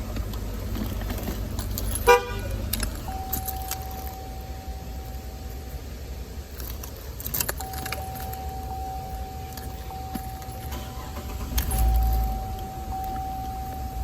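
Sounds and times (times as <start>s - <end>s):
car key jangling in ignition: 0.1s - 14.0s
steady high tone: 2.0s - 6.8s, 7.4s - 14.0s.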